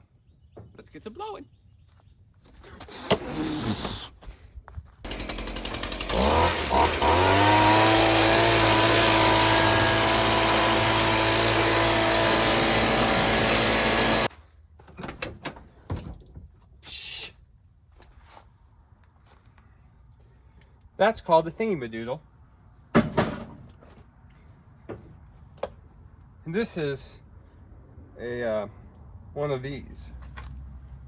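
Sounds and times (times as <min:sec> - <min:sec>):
leaf blower running: 0:05.1 - 0:14.3.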